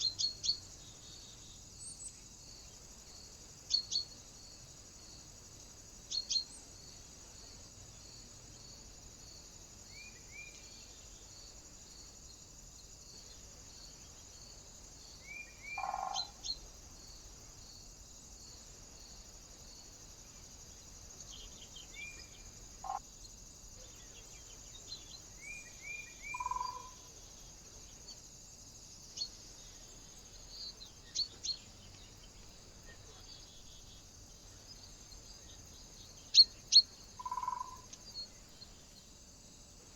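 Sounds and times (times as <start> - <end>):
small birds chirping: 0.0 - 4.2, 6.0 - 6.8, 12.2 - 16.7, 21.1 - 28.2, 29.0 - 39.2
steady high hiss: 0.0 - 39.9.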